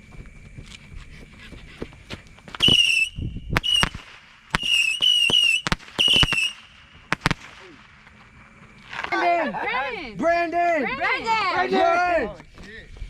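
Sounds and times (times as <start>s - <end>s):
firework pops: 1.7s - 9.2s
firework whistles: 2.5s - 9.2s.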